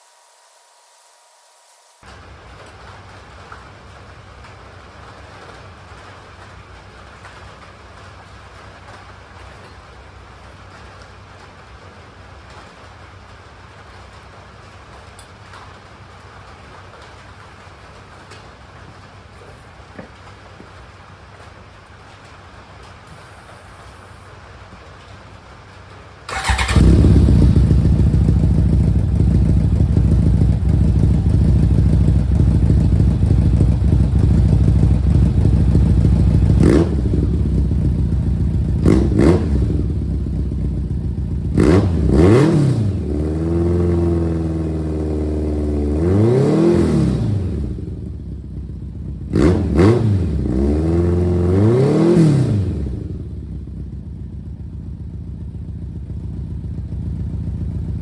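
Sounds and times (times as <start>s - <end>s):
motorcycle engine idling and revving: 25.7s - 58.0s.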